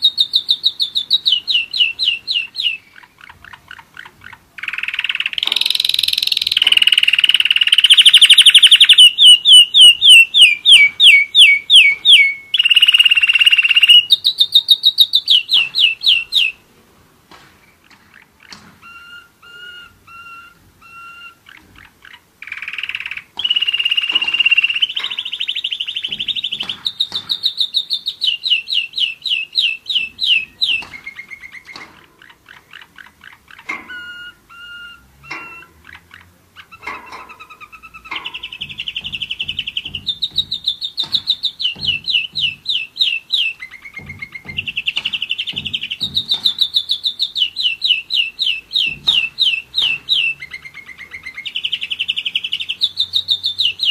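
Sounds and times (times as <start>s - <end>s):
canary singing trills: 0.0s - 16.6s, 17.6s - 53.9s.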